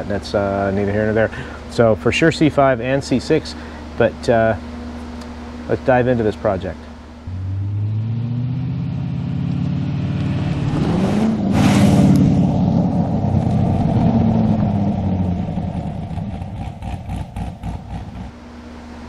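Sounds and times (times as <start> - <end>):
car engine driving past: 7.3 - 18.4.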